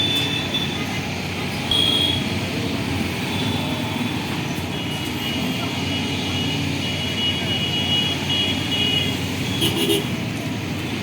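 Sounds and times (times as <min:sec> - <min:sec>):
heavy diesel engines running: 0:00.0 - 0:11.0.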